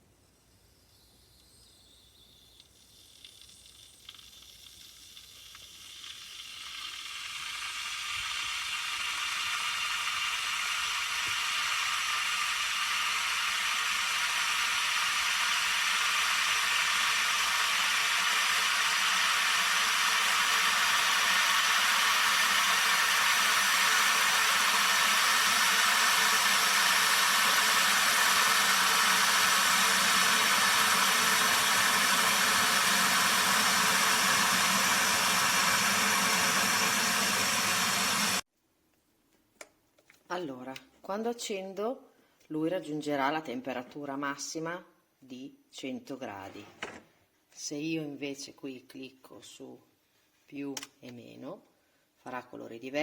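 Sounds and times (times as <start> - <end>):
electric kettle heating water: 2.5 - 38.4.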